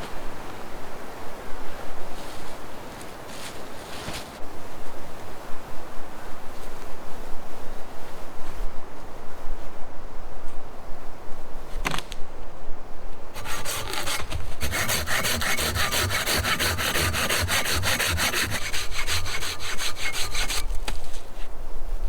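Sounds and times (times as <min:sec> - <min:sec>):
hand saw cutting wood: 0:13.4 - 0:21.0.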